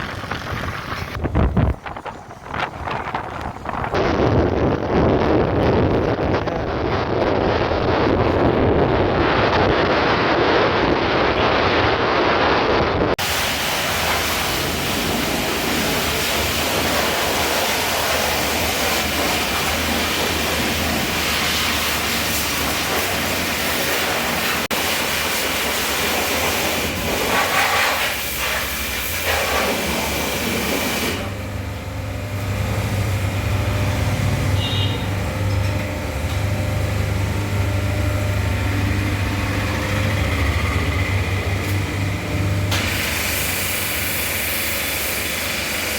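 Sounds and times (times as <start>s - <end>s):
wind rushing over microphone: 0.0s - 13.2s
vehicle engine hum: 0.0s - 27.4s, 29.8s - 45.9s.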